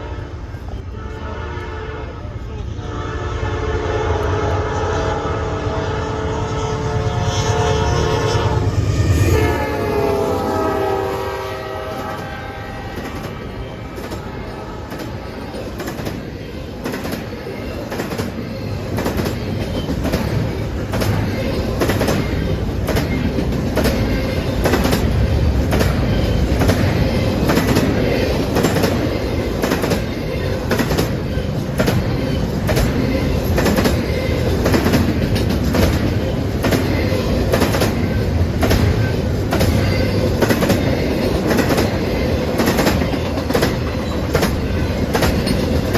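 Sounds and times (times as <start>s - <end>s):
train horn: 0.0s - 15.8s
railroad cars rumbling past: 0.0s - 45.9s
wheels clacking over rail joints: 12.1s - 45.9s.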